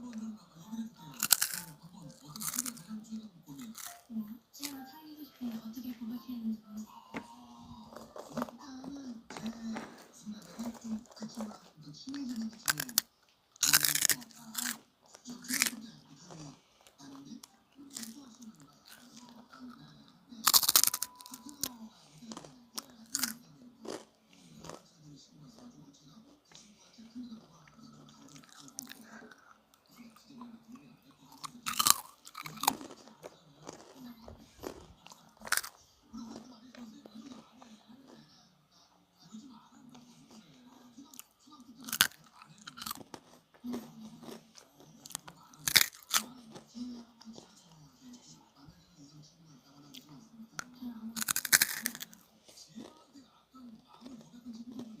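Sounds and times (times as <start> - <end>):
soft chewing: 0.0 - 55.0
doughnut crunching: 1.0 - 4.8, 7.0 - 24.9, 27.4 - 38.4, 40.0 - 47.8, 51.1 - 53.2.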